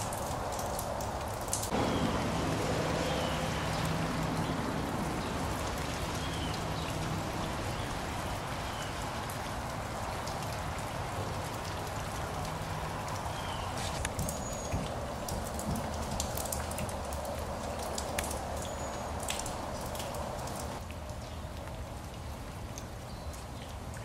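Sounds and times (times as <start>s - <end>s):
wet snow falling hiss: 12.3s - 15.4s.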